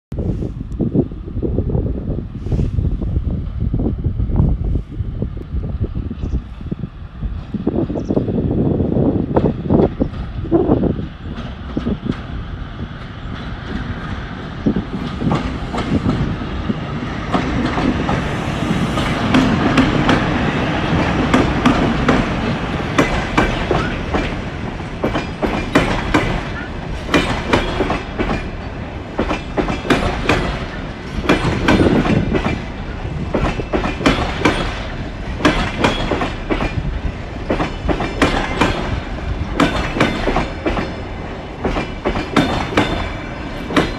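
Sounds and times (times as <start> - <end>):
train rumbling past: 0.1 - 43.9
wheels clacking over rail joints: 9.4 - 43.9.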